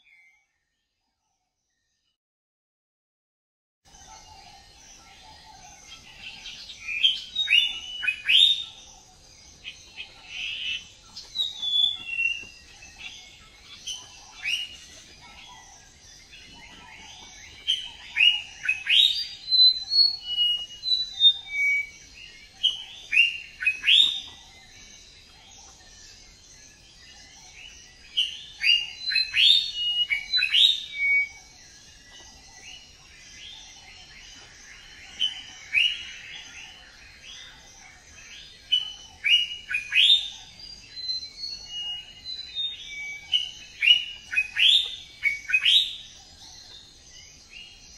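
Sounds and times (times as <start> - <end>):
songbirds chirping: 0.0 - 2.2, 3.9 - 47.9.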